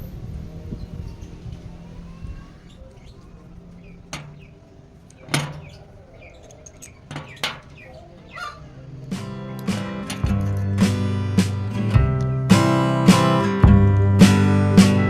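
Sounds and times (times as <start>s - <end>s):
faint background noise: 0.0s - 15.0s
sharp knocks: 4.0s - 15.0s.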